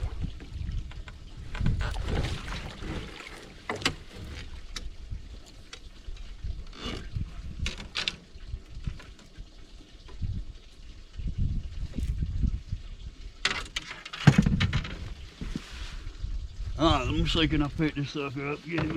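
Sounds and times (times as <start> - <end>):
wind rumble on microphone: 0.0 - 3.2, 3.9 - 13.6, 14.2 - 18.1
water splashing against boat: 0.0 - 11.0, 17.0 - 18.9
sharp splashes: 1.8 - 3.8.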